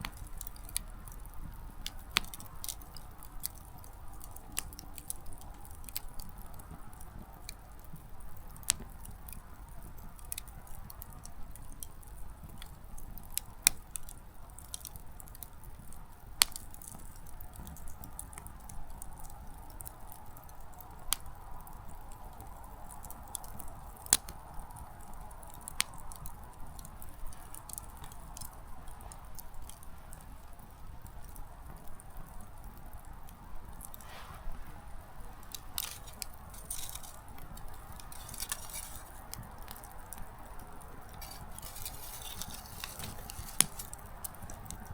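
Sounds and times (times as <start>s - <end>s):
campfire crackling: 0.0s - 44.9s
sharp snaps of burning wood: 0.0s - 44.9s
soft rush of flame: 15.7s - 44.9s.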